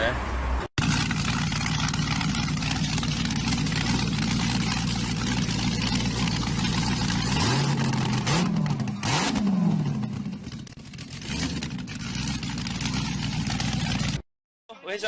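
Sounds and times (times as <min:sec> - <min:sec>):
engine running and revving: 0:00.8 - 0:14.2.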